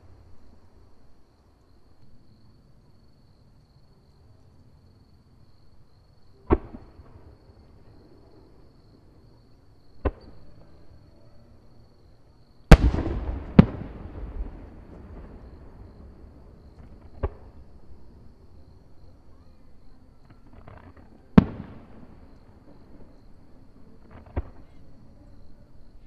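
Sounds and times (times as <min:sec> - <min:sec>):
firework shells bursting: 0:12.7 - 0:15.7
rolling rumble: 0:12.7 - 0:19.2.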